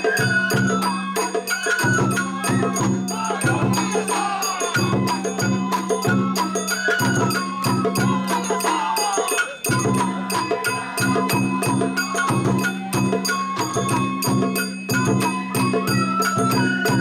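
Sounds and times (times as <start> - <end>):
ringing metal percussion: 0.0 - 17.0.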